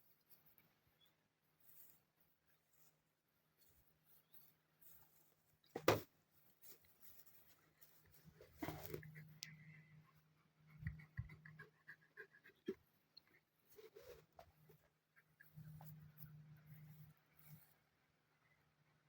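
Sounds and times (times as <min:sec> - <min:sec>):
dog panting: 0:07.8 - 0:15.8.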